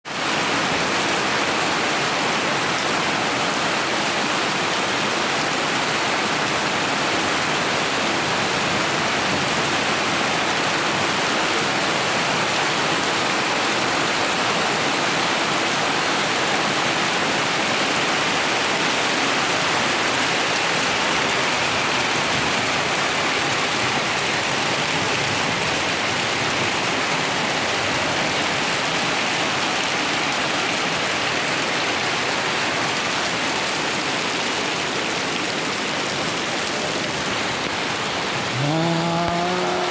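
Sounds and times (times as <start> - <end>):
rain falling: 0.1 - 39.9
waterfall rushing: 33.4 - 39.9.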